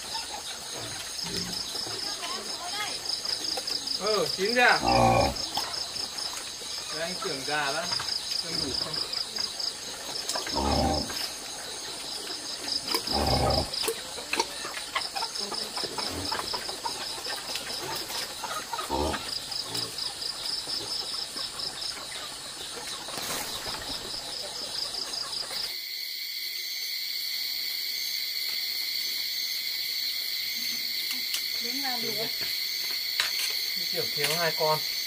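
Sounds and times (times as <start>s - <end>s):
insects trilling: 0.0s - 35.0s.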